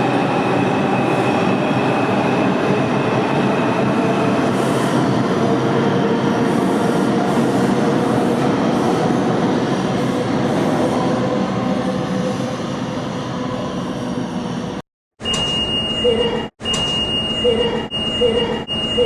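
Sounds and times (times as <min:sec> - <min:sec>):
subway train wheels rumbling: 0:00.0 - 0:14.8.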